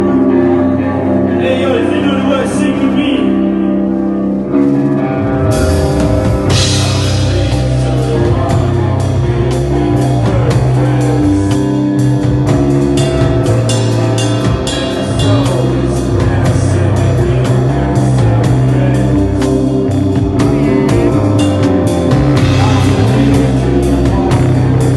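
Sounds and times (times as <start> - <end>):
distorted guitar and bass chords: 0.0 - 24.9
live rock band playing: 0.0 - 24.9
drum kit with cymbal crashes: 5.5 - 24.9.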